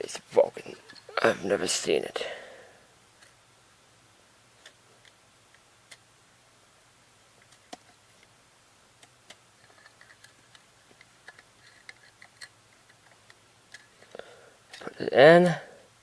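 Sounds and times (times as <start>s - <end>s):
light clicks and taps of cassette: 4.6s - 6.0s, 7.4s - 8.3s, 9.0s - 14.1s.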